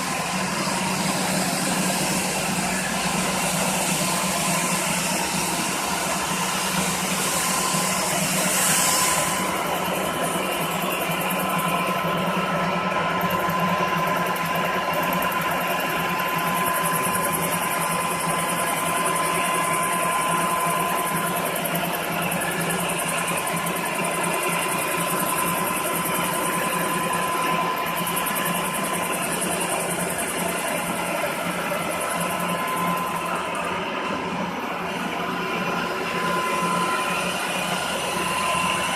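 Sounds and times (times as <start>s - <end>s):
grinding hiss: 0.0s - 11.6s
floor grinder motor whine: 0.0s - 38.9s.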